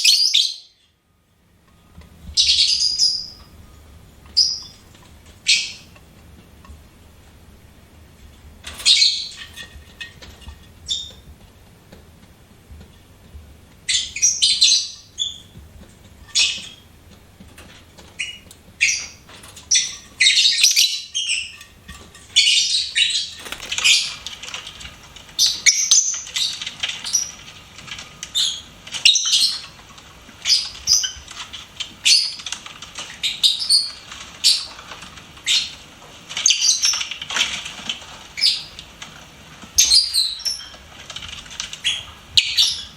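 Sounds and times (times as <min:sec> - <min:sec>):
birds chirping shrilly: 0:18.2 - 0:21.6, 0:22.4 - 0:24.3.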